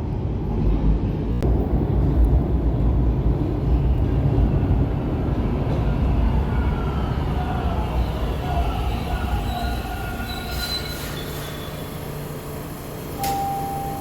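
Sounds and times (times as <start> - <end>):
subway train rumbling on track: 0.0 - 14.0
steel wheel squeal: 6.8 - 12.4.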